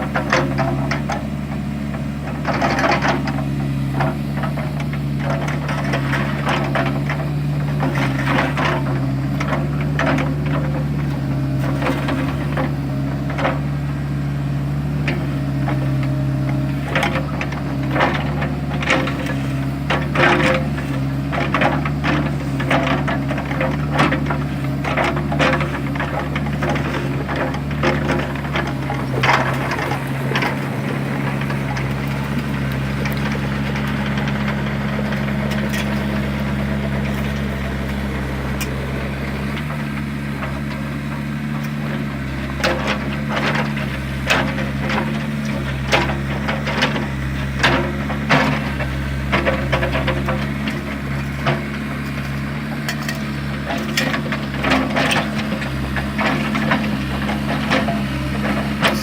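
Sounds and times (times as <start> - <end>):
diesel engine running: 0.0 - 59.0
bucket clanking on rocks: 16.8 - 37.9, 39.4 - 59.0.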